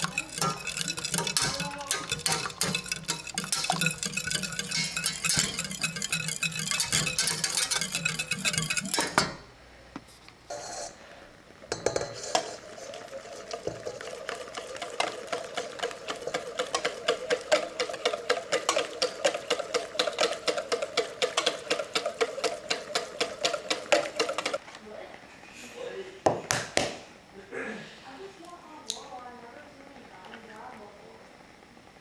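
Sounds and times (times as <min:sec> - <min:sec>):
whisk clicking against bowl: 0:00.0 - 0:09.4, 0:11.8 - 0:24.6.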